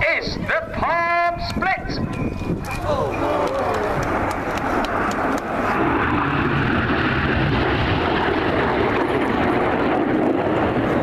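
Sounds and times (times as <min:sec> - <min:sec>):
jet aircraft flying past: 0:03.1 - 0:11.0.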